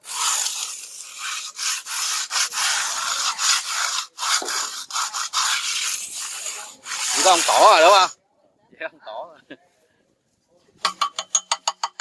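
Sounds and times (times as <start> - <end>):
plastering float scraping wet wall: 0.0 - 8.1.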